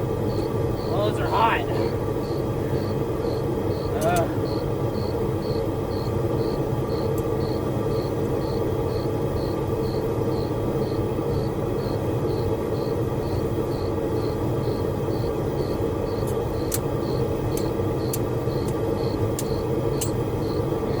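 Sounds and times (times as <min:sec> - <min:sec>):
sharp ticks: 0:03.9 - 0:04.3, 0:15.6 - 0:20.2.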